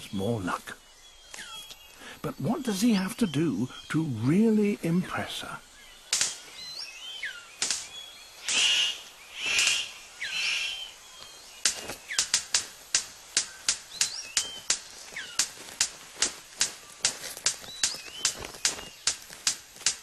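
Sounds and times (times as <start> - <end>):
faint whistling bird calls: 0.0 - 12.5, 13.4 - 15.6, 16.6 - 19.3
sharp bird clicks: 1.2 - 2.0, 5.6 - 20.0
bird rushing bursts: 6.1 - 19.8.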